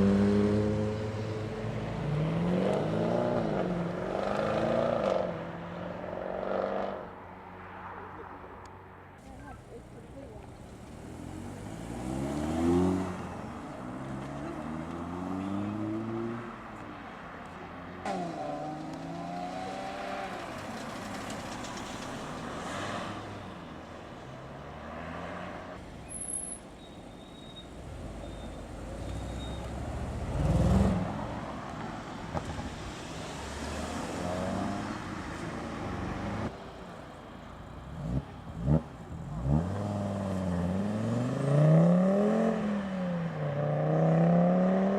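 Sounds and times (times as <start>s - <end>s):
cars accelerating away: 0.0s - 7.1s, 10.7s - 16.8s, 17.7s - 23.4s, 28.0s - 36.5s, 37.9s - 44.9s.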